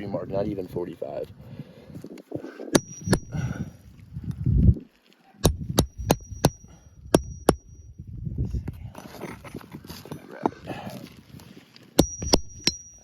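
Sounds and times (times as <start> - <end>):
hammer tapping metal tool: 2.8 - 3.4, 5.4 - 7.9, 12.0 - 13.0.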